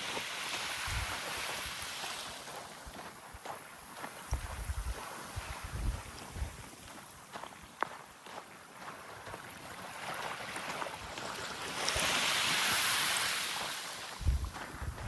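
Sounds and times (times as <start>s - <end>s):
wave washing up beach: 0.0s - 2.8s, 9.4s - 14.7s.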